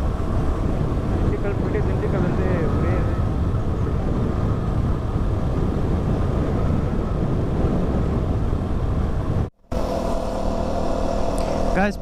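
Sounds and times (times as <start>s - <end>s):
wind rushing over microphone: 0.0s - 12.0s
motorcycle engine: 9.6s - 12.0s.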